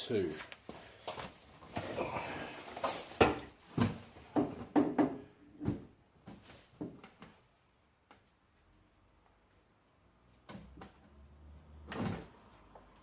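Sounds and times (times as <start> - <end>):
knocks and clunks from handwork: 3.2 - 7.1.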